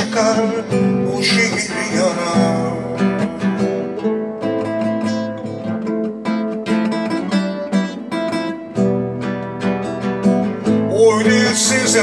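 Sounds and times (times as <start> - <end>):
person singing: 0.0 - 5.9, 10.8 - 12.0
acoustic guitar strummed and plucked: 0.0 - 12.0.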